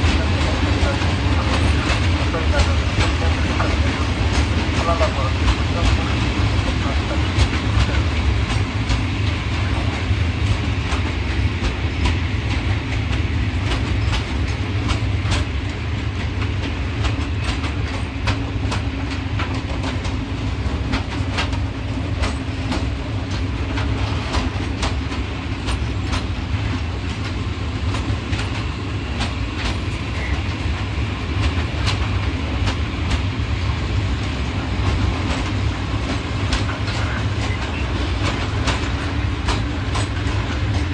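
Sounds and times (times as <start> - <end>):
freight train low rumble: 0.0 - 40.9
wheels clicking over rail joints: 34.5 - 40.9.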